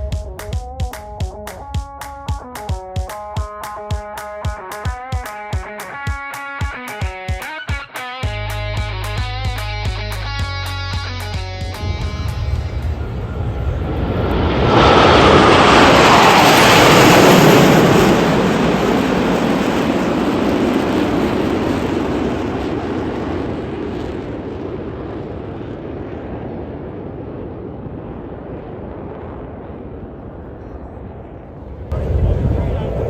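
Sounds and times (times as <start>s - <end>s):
jet flying past: 0.0s - 4.4s, 11.6s - 33.0s.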